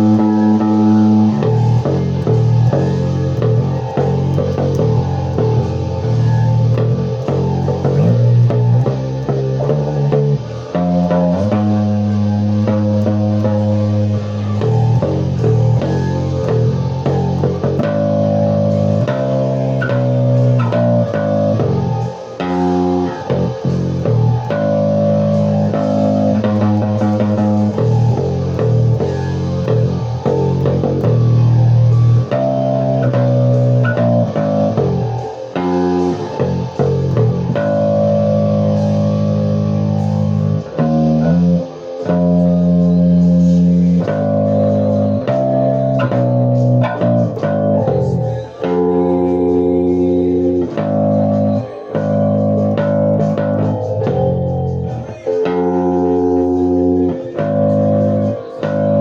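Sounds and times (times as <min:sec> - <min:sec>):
plucked guitar and bass riff: 0:00.0 - 0:59.0.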